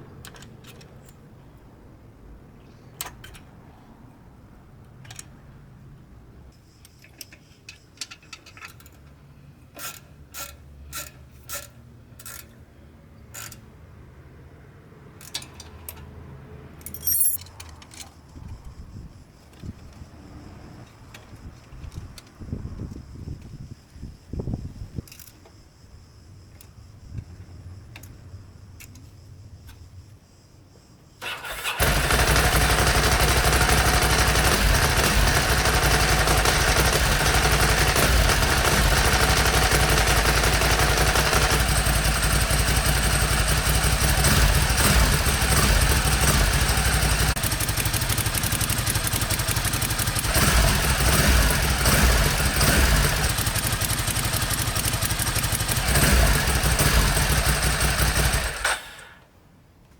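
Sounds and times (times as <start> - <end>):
motorcycle engine starting and running: 31.2 - 59.2.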